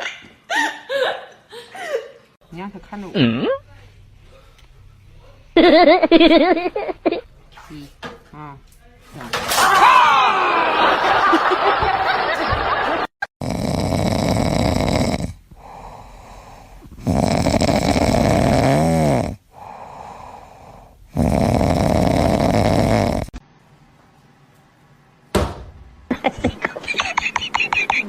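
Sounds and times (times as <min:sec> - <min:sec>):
cat snoring: 0:13.4 - 0:23.4.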